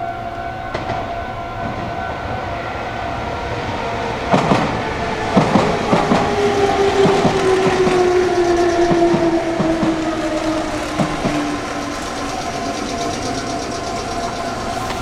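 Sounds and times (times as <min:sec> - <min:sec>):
train wheels clattering over rail joints: 0:04.3 - 0:15.0.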